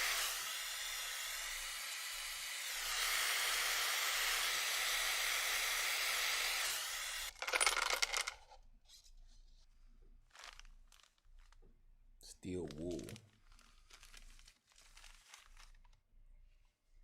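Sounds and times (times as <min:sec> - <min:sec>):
steady hiss: 0:00.0 - 0:00.7.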